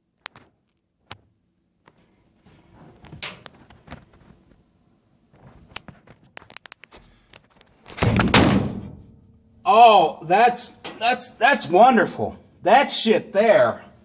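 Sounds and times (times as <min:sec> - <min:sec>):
fireplace fire crackling: 0:00.1 - 0:07.0
loud thud-like burst: 0:08.0 - 0:09.1.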